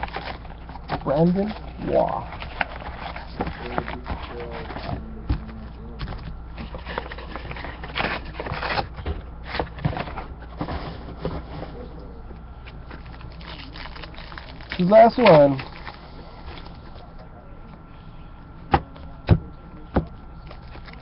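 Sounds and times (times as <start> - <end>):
cards rustling and clicking: 0.0 - 11.4, 12.9 - 16.9
faint background voices: 16.0 - 21.0.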